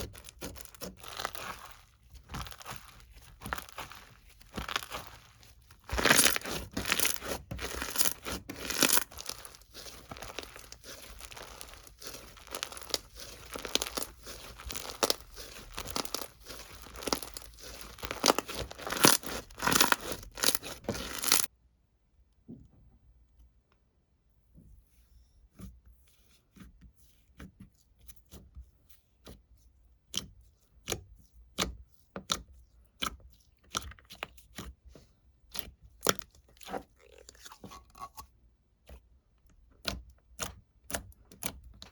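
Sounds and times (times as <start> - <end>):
crinkly material crinkling and tearing: 0.0 - 21.5.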